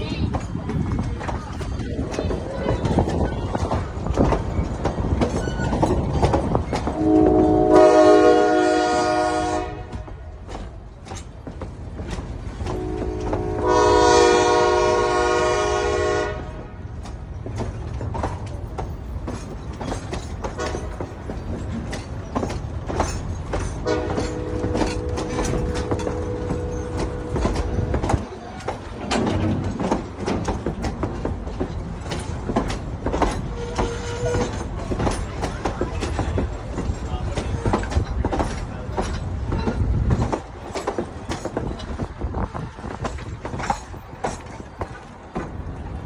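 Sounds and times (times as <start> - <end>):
train rumble: 0.0 - 46.0
wheels clicking over rail joints: 0.0 - 46.0
steam train whistle blowing: 7.0 - 9.9, 12.7 - 16.5.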